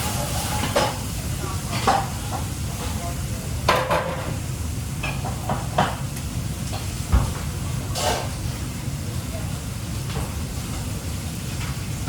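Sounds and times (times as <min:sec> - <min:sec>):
pans and utensils clanking: 0:00.0 - 0:03.0, 0:03.6 - 0:04.4, 0:05.0 - 0:06.0, 0:06.7 - 0:08.5.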